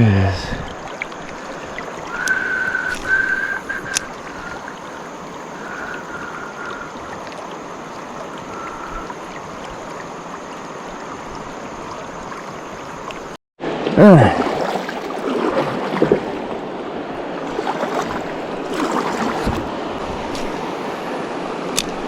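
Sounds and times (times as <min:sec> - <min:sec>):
river water rushing: 0:00.0 - 0:22.0
click: 0:03.9 - 0:04.1.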